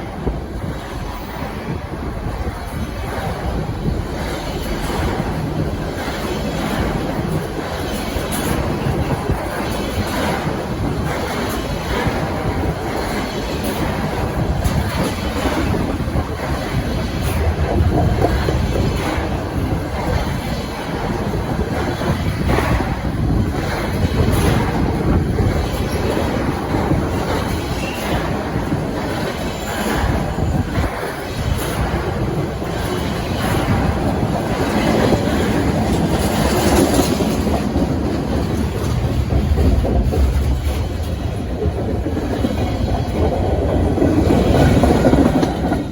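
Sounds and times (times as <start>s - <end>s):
train wheels rumbling on track: 0.0s - 45.9s.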